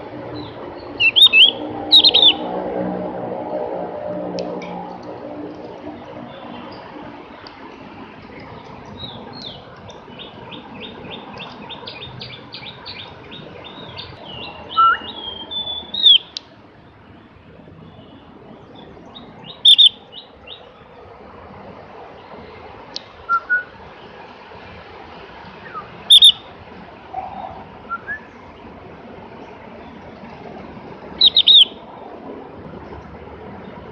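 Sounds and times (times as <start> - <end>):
steady background noise: 0.0 - 33.9
bird chirps: 0.4 - 2.4, 8.9 - 16.4, 17.9 - 20.7, 25.7 - 26.5, 31.2 - 31.8
bird singing high notes: 1.0 - 2.5, 19.4 - 20.3, 25.7 - 26.4, 31.2 - 31.8.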